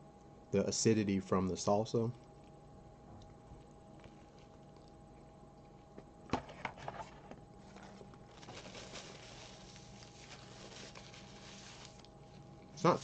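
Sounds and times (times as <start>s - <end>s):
crispy food crackling: 3.6s - 5.9s, 7.6s - 13.0s.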